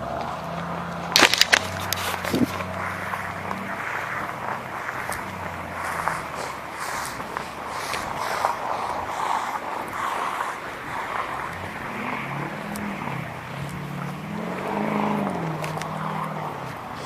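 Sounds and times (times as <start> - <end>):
street traffic noise: 0.0 - 17.0
vehicle engine: 0.0 - 17.0.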